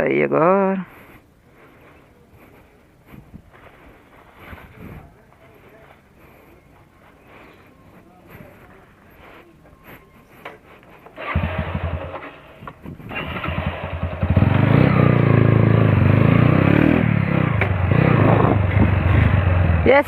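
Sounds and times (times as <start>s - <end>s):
motorcycle engine revving: 11.0s - 20.0s.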